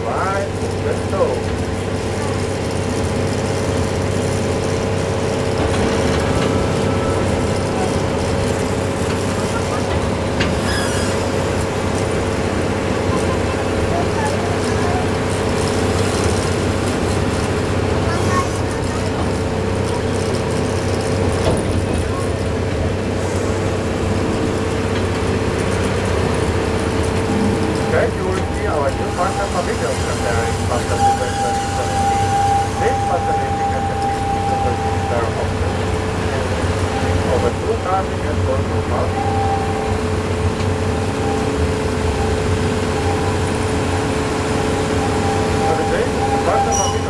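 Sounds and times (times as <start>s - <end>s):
train rumbling along track: 0.0s - 47.0s
steady whine: 25.0s - 47.0s.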